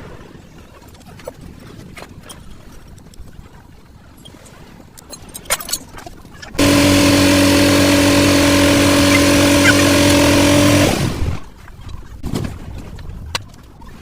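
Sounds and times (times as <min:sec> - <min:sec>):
power tool spinning down: 0:06.6 - 0:11.5
power tool whining: 0:06.6 - 0:11.5.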